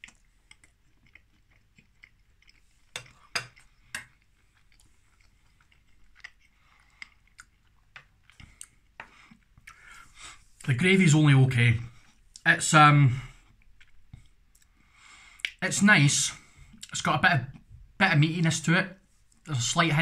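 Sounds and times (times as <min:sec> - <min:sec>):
man chewing food: 0:00.0 - 0:10.7, 0:11.9 - 0:12.4, 0:13.3 - 0:15.6.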